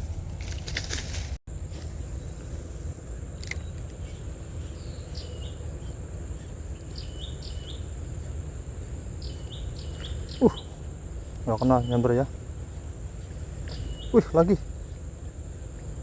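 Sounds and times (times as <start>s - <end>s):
low steady rumble: 0.0s - 16.0s
bird stepped call: 9.2s - 15.1s.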